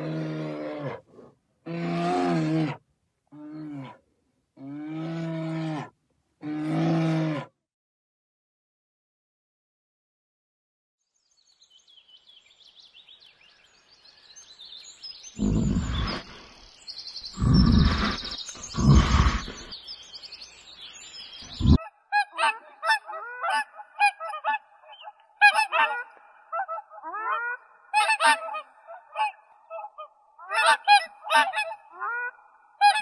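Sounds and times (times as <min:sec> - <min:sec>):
bear growling: 0:00.0 - 0:02.8, 0:15.4 - 0:16.4, 0:17.3 - 0:19.7, 0:21.5 - 0:21.8
faint bird chirping: 0:11.0 - 0:22.0
waterfowl honking: 0:21.6 - 0:33.0.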